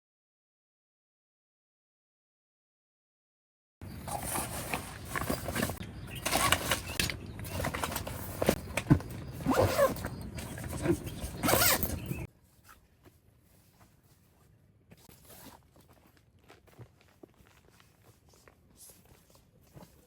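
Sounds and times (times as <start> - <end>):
gear rustling and scraping: 3.8 - 20.0
zipper being pulled: 9.4 - 12.8.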